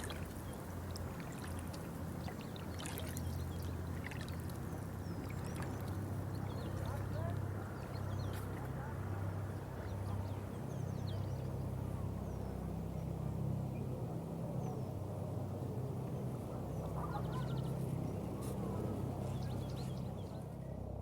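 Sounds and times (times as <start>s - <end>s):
water washing: 0.0s - 7.5s
small birds chirping: 0.0s - 12.5s, 16.1s - 20.6s
steady low hum: 0.0s - 21.0s.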